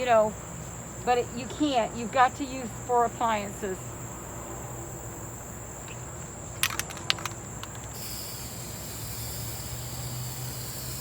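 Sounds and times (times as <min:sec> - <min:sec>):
sharp clicks: 0:06.6 - 0:08.2
aerosol spray can hissing: 0:06.6 - 0:11.0.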